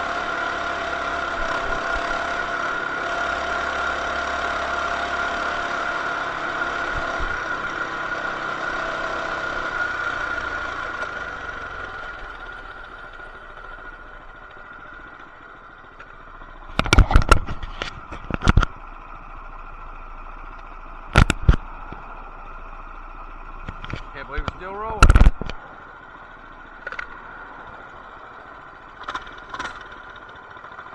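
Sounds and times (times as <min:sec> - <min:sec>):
small engine running: 0:00.0 - 0:30.9
sharp clattering knocks: 0:23.6 - 0:25.6.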